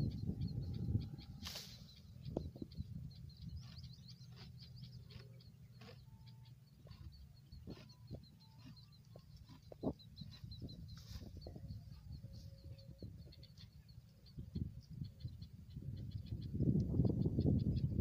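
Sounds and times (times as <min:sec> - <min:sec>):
low rumble: 0:00.0 - 0:05.5
faint bird chirping: 0:00.0 - 0:18.0.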